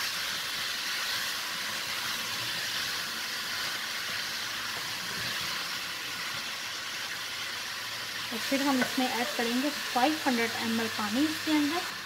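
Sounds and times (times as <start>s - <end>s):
vegetables sizzling in oil: 0.0s - 12.0s
wooden spoon stirring pot: 8.4s - 9.6s.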